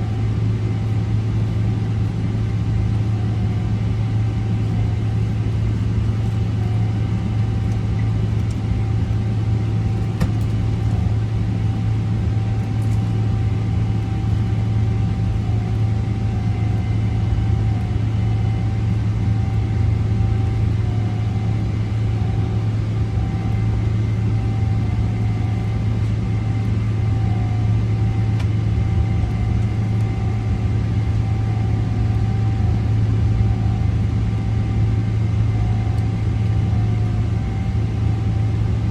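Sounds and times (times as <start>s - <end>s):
jet engine cabin rumble: 0.0s - 38.9s.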